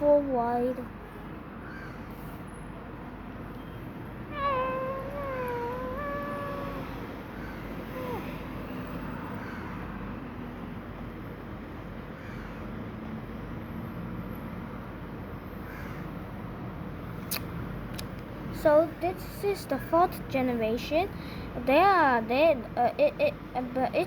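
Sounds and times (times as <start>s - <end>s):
faint low hum: 2.9s - 9.2s
kitten meowing: 4.3s - 7.0s, 7.9s - 8.4s
short cry dropping in pitch: 4.3s - 7.0s, 7.9s - 8.4s.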